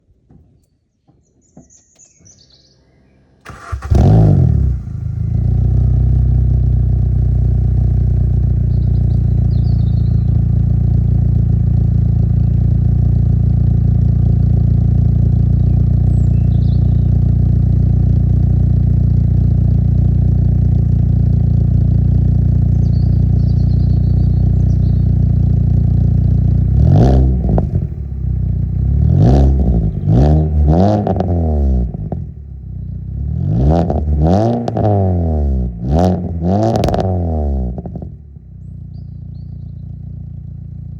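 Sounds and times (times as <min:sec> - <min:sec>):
birds chirping faintly: 0:00.2 - 0:03.9, 0:08.5 - 0:13.6, 0:14.5 - 0:19.0, 0:20.7 - 0:27.1, 0:38.4 - 0:40.9
car engine starting and idling: 0:02.0 - 0:40.9.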